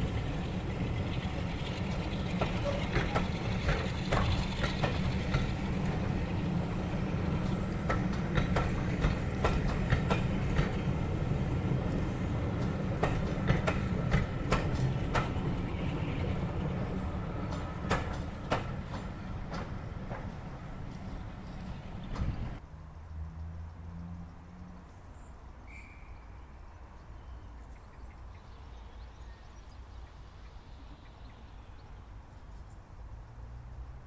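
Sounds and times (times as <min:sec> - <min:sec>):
train rumbling on track: 0:00.0 - 0:22.6
wheels clicking over rail joints: 0:00.0 - 0:22.6.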